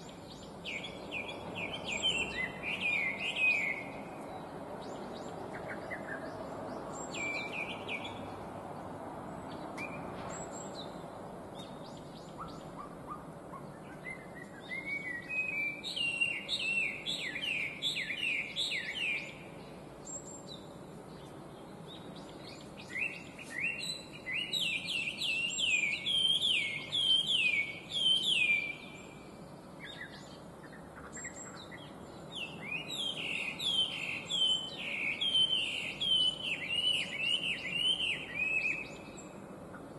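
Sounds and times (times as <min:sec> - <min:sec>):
low background noise: 0:00.0 - 0:39.9
bird singing whistled phrases: 0:13.8 - 0:19.4, 0:22.9 - 0:29.0, 0:32.4 - 0:39.2.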